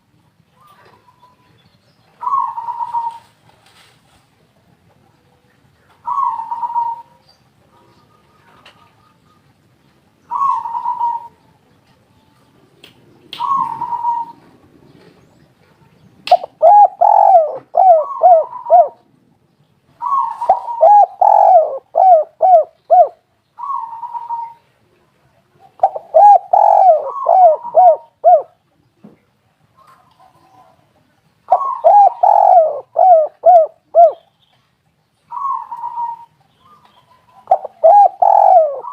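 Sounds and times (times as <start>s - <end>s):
doves cooing: 2.2s - 3.4s, 6.0s - 7.2s, 10.3s - 11.4s, 13.4s - 15.2s, 16.3s - 19.1s, 20.0s - 24.7s, 25.6s - 28.6s, 31.5s - 34.3s, 35.3s - 38.9s.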